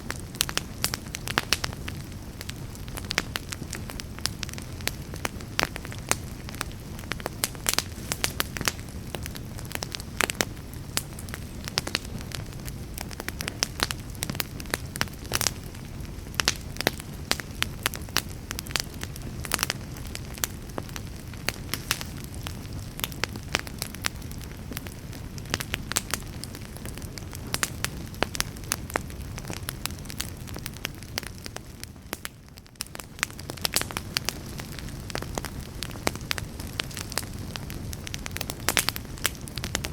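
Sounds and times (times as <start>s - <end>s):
fire crackling and popping: 0.0s - 39.9s
wood fire burning: 0.0s - 39.9s.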